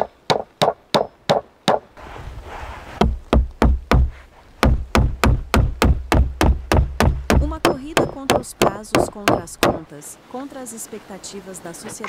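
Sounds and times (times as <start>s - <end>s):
deep thuds: 3.0s - 9.8s
rapid knocks: 3.0s - 9.8s.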